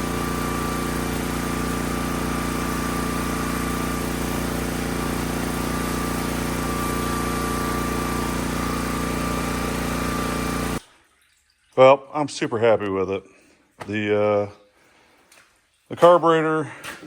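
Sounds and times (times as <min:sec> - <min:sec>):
steam pressure washer running: 0:00.0 - 0:10.8.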